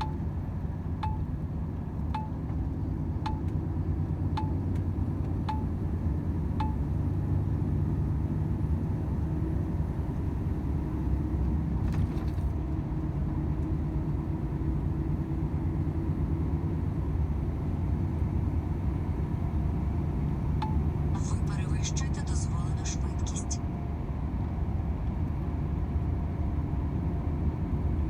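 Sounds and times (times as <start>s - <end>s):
low road rumble: 0.0s - 28.0s
truck diesel engine running: 12.6s - 28.0s.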